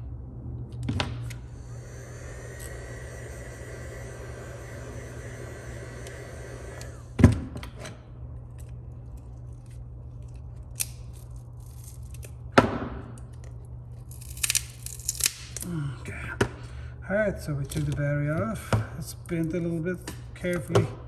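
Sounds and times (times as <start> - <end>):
hiss of blowing air: 1.5 - 7.2.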